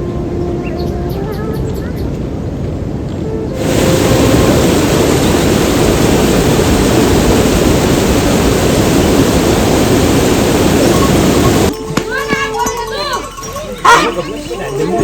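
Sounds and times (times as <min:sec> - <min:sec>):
loud steady rushing noise: 0:00.0 - 0:11.8.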